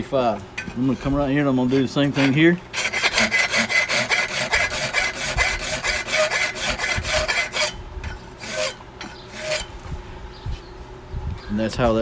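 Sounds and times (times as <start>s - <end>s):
hand file scraping metal: 0.8s - 9.8s.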